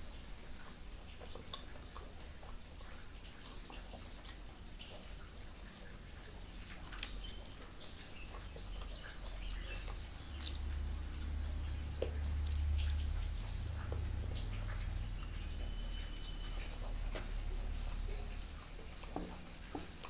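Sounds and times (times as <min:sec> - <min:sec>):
wet mouth clicks and smacks: 0:00.6 - 0:05.1, 0:06.7 - 0:15.4
person chewing: 0:01.1 - 0:20.0.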